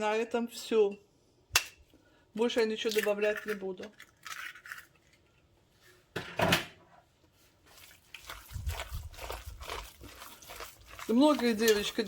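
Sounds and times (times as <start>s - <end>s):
soft handling and rubbing noises: 7.0s - 12.0s.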